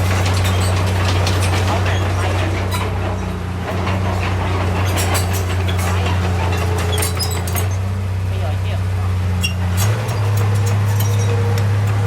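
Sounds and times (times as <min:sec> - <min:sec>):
metallic clanking and rattling: 0:00.0 - 0:08.5, 0:09.4 - 0:12.0
diesel engine droning: 0:00.0 - 0:12.0.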